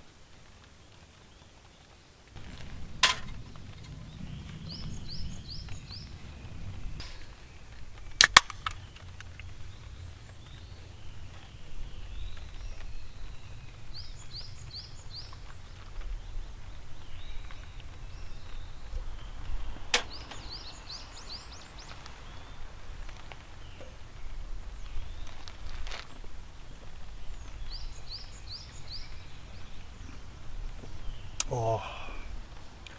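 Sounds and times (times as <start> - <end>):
small bird chirping: 0.8 - 32.8
low rumble: 2.4 - 19.9
sharp clicks: 7.0 - 9.5.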